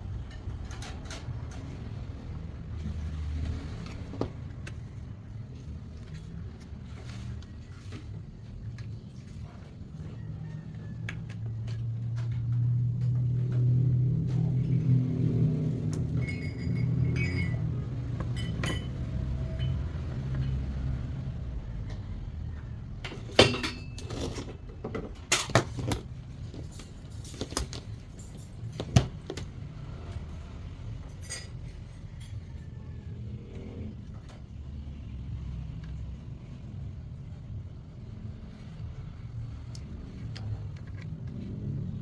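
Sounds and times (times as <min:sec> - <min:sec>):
clicks and knocks of parts: 0:23.0 - 0:30.3.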